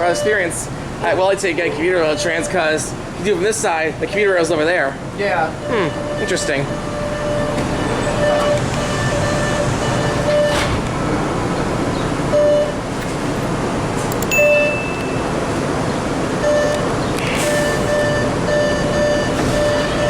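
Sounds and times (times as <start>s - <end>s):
subway car hum: 0.0s - 20.0s
short electronic beeps: 5.6s - 10.6s, 14.3s - 15.3s, 16.4s - 20.0s
high electronic chime: 14.3s - 15.3s.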